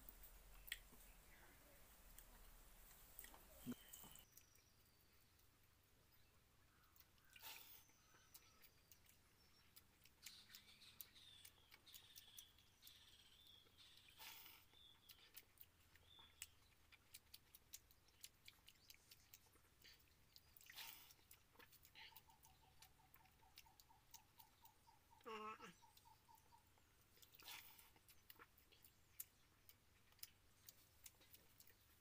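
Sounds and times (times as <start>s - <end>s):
wet chewing: 0.0s - 32.0s
faint bird chirps: 3.3s - 16.9s, 18.0s - 29.8s
mouth clicks: 7.0s - 32.0s.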